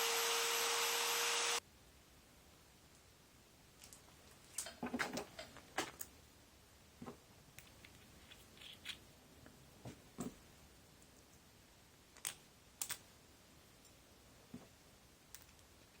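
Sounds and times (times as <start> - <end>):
small parts clicking and tapping: 7.6 - 9.0, 12.1 - 13.1, 15.3 - 16.0.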